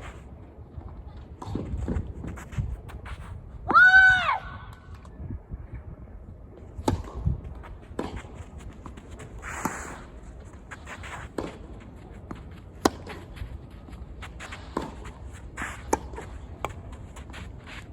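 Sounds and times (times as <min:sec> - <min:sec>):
shoes on court surface: 0:00.0 - 0:03.9, 0:06.6 - 0:17.9
racket hitting tennis ball: 0:06.8 - 0:17.2.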